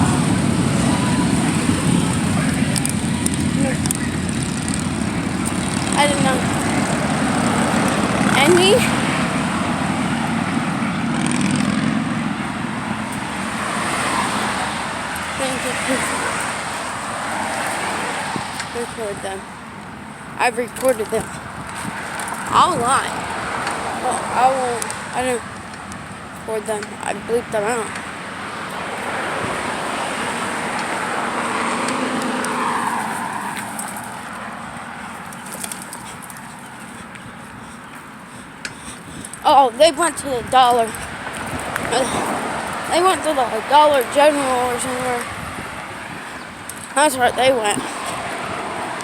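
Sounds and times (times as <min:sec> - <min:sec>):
car driving past: 0:00.0 - 0:18.8, 0:28.0 - 0:36.7, 0:40.9 - 0:47.1
wind rushing on microphone: 0:00.0 - 0:37.8, 0:38.9 - 0:49.0.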